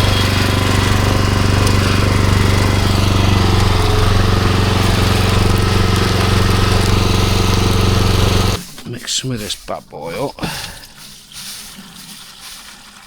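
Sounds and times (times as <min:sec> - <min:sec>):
pressure washer engine: 0:00.0 - 0:13.0.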